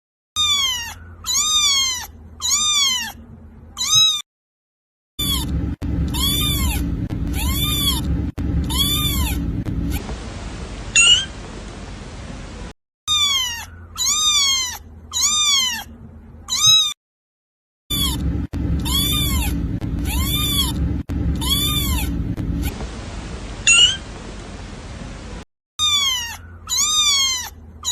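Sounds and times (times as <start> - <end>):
kitten meowing: 0.4 - 3.2, 3.8 - 4.2, 5.2 - 10.0, 11.0 - 11.3, 13.1 - 15.9, 16.5 - 17.0, 17.9 - 22.7, 23.7 - 24.0, 25.8 - 27.9
steady low hum: 5.2 - 12.7, 17.9 - 25.4.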